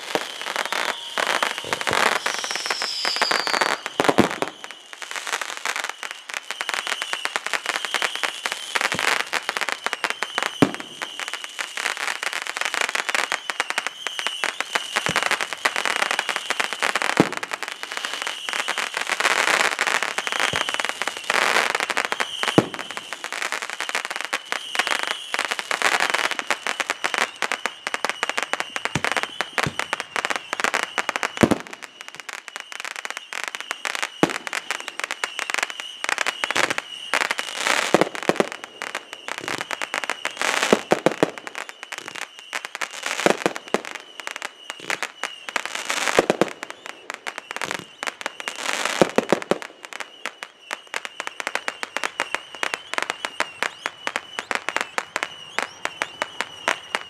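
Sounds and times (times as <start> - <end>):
deep fireworks boom: 0.0 - 4.6
fireworks crackling: 0.0 - 57.0.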